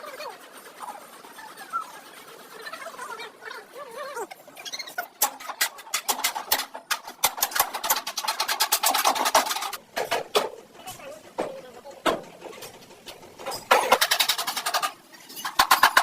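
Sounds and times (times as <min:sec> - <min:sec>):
short squeaks: 0:04.2 - 0:05.8.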